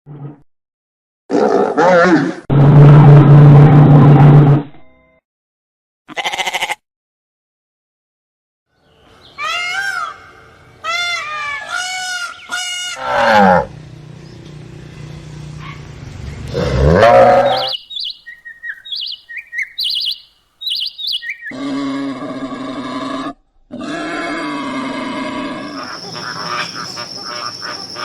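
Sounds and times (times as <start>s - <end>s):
pitched animal calls: 16.5s - 22.1s, 23.8s - 28.0s
short high chirps: 17.5s - 21.5s.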